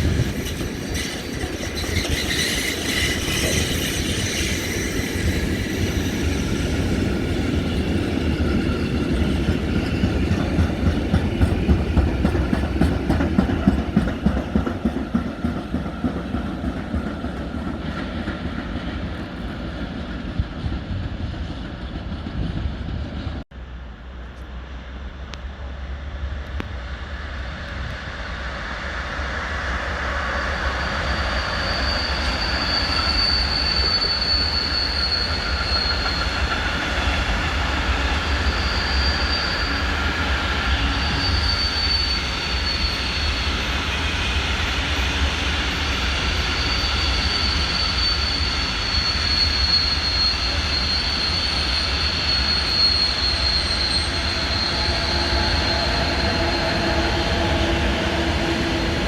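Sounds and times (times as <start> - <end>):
high-pitched wheel squeal: 0.0 - 10.9, 29.5 - 59.0
train running: 0.0 - 59.0.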